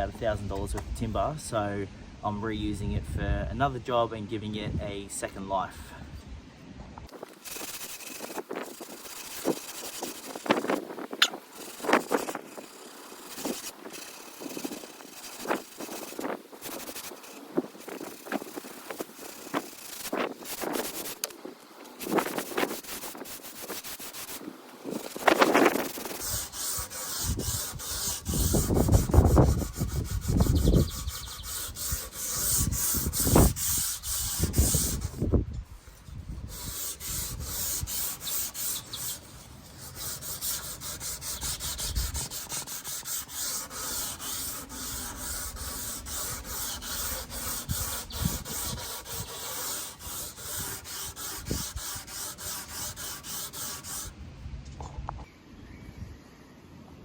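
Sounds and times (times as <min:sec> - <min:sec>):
wind buffeting microphone: 0:02.6 - 0:03.6, 0:24.2 - 0:38.2, 0:41.0 - 0:42.8, 0:44.2 - 0:52.8
sanding wood boards: 0:07.1 - 0:54.1.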